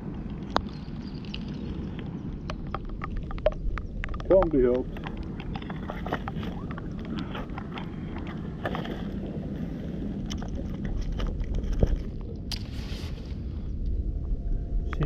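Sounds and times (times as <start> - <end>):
wind rumble on microphone: 0.0 - 15.0
small clicks and taps: 0.4 - 8.4.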